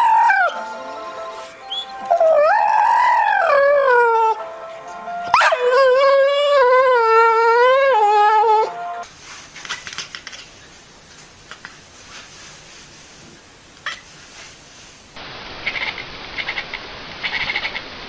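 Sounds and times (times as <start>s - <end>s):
dog howling: 0.0s - 0.6s, 1.7s - 4.4s, 5.3s - 8.8s.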